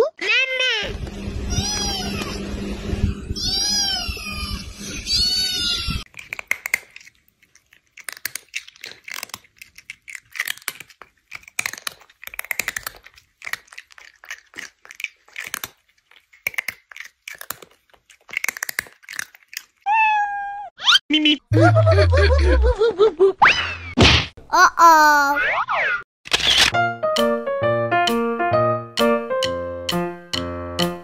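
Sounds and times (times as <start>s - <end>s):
cat meowing: 1.5s - 2.4s, 3.4s - 6.0s, 19.9s - 20.7s
irregular clicking and crackling: 6.0s - 19.9s.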